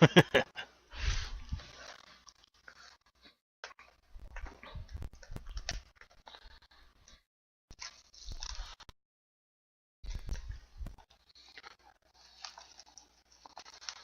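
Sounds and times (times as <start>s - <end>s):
card packaging crinkling: 11.3s - 14.0s.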